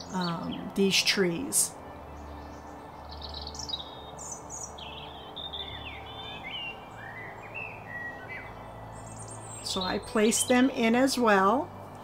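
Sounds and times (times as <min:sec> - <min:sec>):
songbirds chirping and singing: 0:00.0 - 0:12.0.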